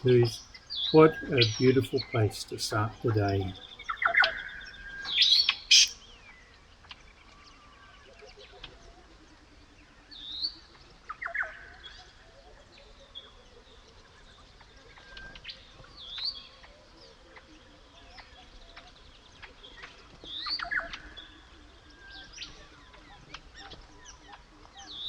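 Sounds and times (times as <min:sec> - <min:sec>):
low repeated bird call: 0:00.0 - 0:06.0
whistled bird calls: 0:00.0 - 0:06.0.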